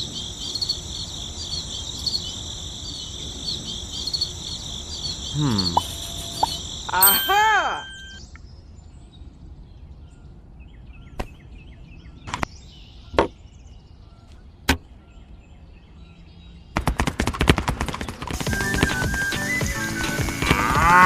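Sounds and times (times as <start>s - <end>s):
faint steady background noise: 0.0s - 16.8s
fast clatter of clicks: 16.8s - 19.3s.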